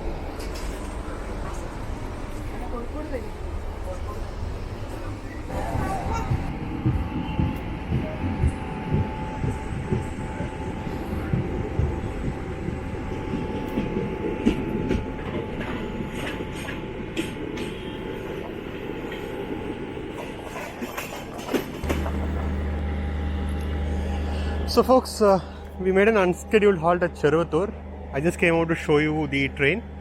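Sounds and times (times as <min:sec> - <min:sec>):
steady low hum: 0:00.0 - 0:20.2, 0:21.8 - 0:30.0
train wheels clattering: 0:20.1 - 0:22.6.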